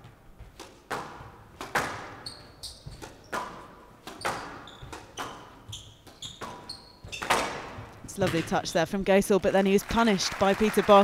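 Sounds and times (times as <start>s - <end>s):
squash ball hitting rackets and walls: 0.0s - 8.7s
shoes squeaking on court: 0.0s - 8.9s.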